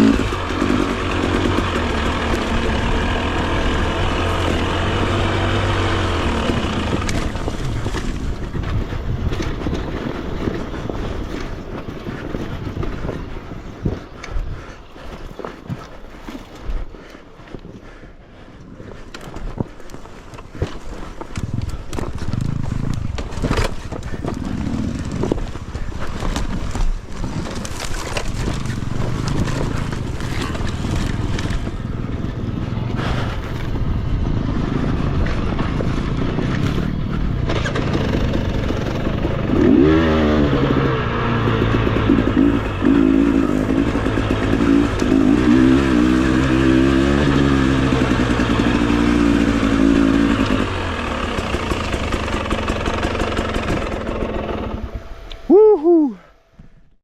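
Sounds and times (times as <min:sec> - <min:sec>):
dirt bike engine revving: 0:00.0 - 0:11.4, 0:22.2 - 0:32.3, 0:34.3 - 0:56.0.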